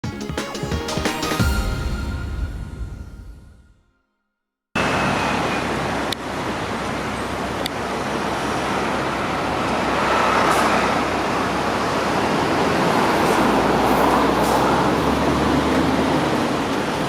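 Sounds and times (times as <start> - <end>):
passing road traffic: 4.8 - 17.0.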